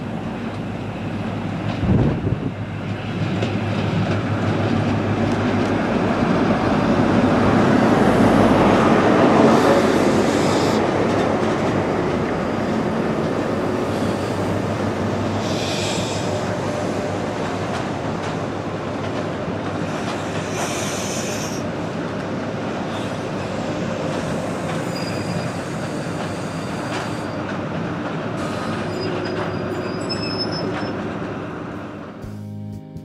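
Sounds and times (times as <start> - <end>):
train wheels on rails: 0.0 - 32.2
high-pitched wheel squeals: 24.8 - 27.4, 28.5 - 31.0
music: 32.2 - 33.0.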